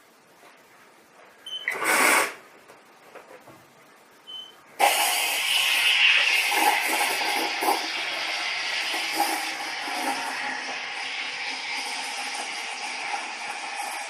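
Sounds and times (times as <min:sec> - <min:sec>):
espresso machine hissing: 0:01.7 - 0:02.4, 0:04.8 - 0:14.0.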